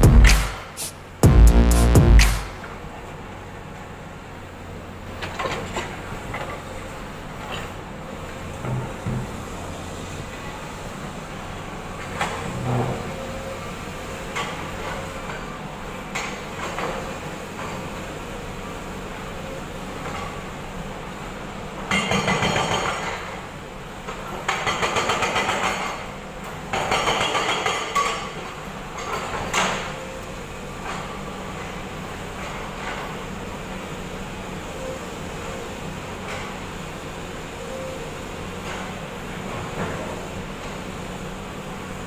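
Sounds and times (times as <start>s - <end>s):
excavator engine running: 0.0s - 21.9s
hydraulic breaker hammering concrete: 26.7s - 28.3s.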